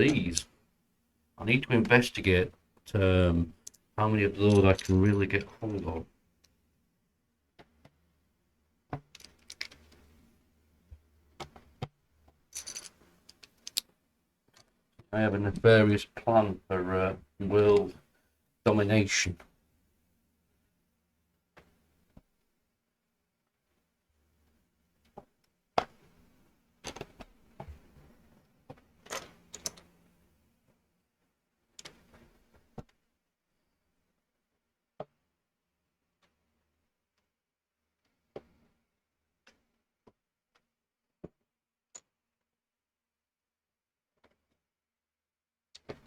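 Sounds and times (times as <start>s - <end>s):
plastic bricks clicking and clattering: 9.0s - 9.9s, 12.6s - 13.9s.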